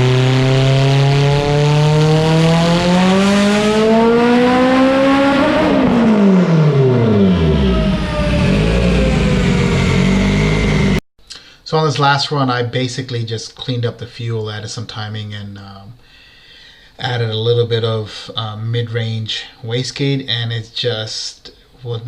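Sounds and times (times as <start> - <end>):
car engine revving at full throttle: 0.0 - 11.0.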